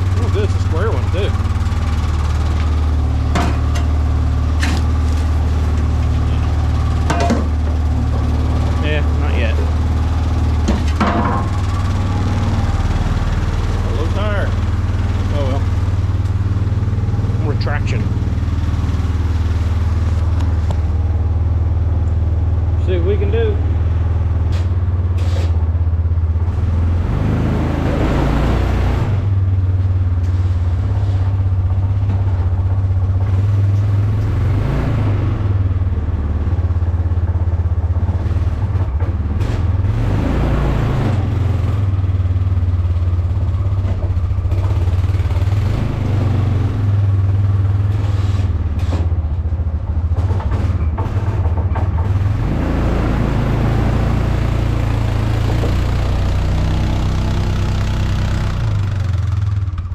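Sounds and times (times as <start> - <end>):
vehicle engine revving under load: 0.0 - 59.9.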